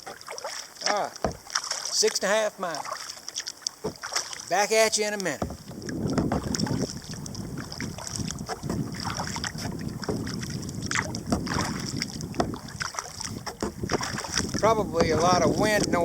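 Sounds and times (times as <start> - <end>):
kayak paddle splashing water: 0.0 - 16.0
wind buffeting microphone: 5.4 - 16.0.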